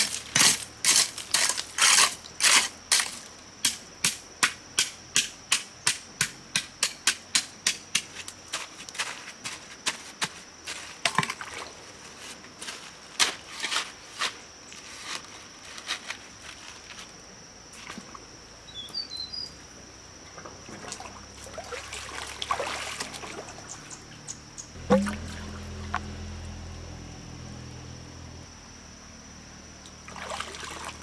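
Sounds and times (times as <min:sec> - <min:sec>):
bird chirp: 0:18.7 - 0:19.6, 0:23.6 - 0:24.8
trickling water: 0:20.3 - 0:26.3, 0:29.8 - 0:31.0
high insect buzz: 0:23.6 - 0:30.9.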